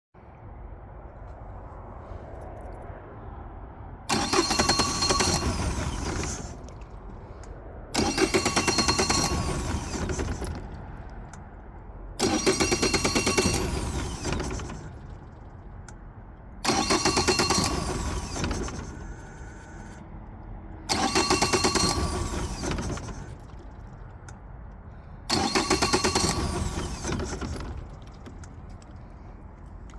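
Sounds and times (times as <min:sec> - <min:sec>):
outboard starter cranking engine: 0:04.1 - 0:11.6, 0:12.2 - 0:16.0, 0:16.6 - 0:20.0, 0:20.8 - 0:24.4, 0:25.2 - 0:29.9.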